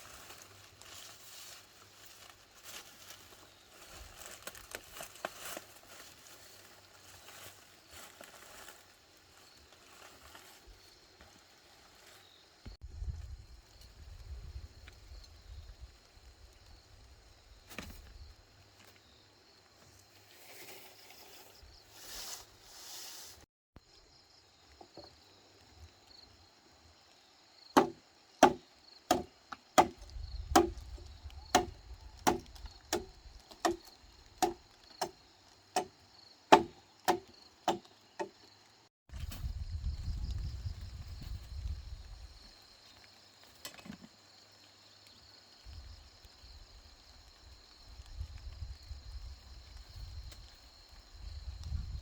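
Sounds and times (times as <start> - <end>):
hand tool striking wood: 27.8 - 30.8, 31.5 - 35.2, 35.8 - 38.4.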